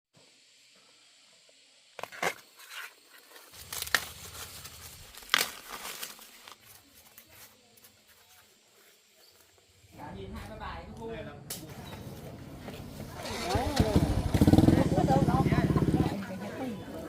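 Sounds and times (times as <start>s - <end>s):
rustling and crinkling: 2.0s - 9.7s.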